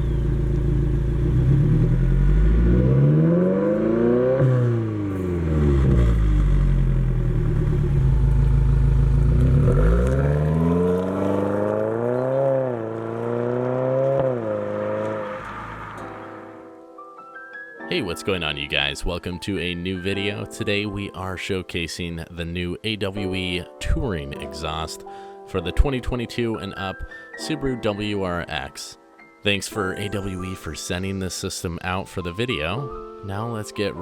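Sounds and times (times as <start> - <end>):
car engine revving: 0.0 - 16.5.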